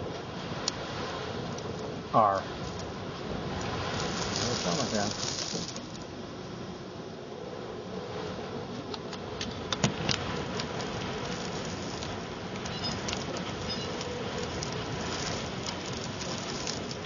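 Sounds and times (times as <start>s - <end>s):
sandstorm wind rushing: 0.0s - 17.0s
sand ticking against windows: 2.6s - 6.0s, 9.9s - 17.0s.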